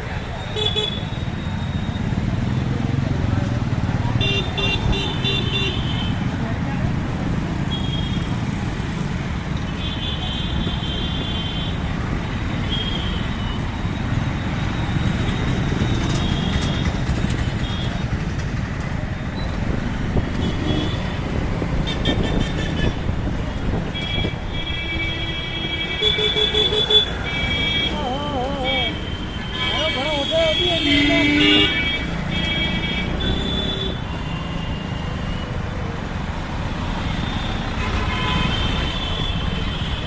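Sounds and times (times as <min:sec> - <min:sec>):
vehicle horns honking: 0:04.2 - 0:06.2, 0:20.4 - 0:21.2, 0:21.8 - 0:23.0, 0:23.9 - 0:35.4, 0:37.1 - 0:40.0
wind and road rumble: 0:13.2 - 0:26.0.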